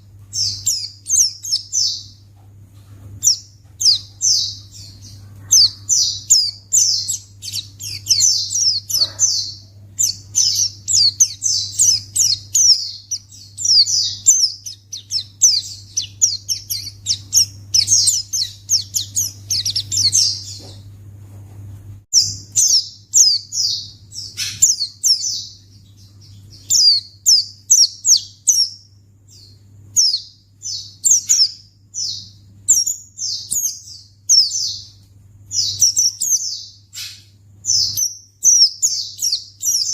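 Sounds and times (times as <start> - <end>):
bird singing rapid chirps: 0.0 - 2.3, 3.2 - 20.8, 22.1 - 39.9.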